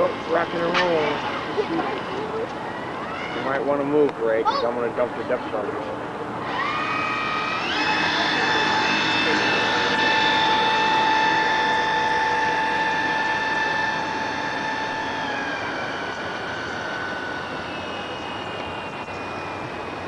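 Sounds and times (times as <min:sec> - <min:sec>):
model boat motor whining: 0:06.4 - 0:20.0.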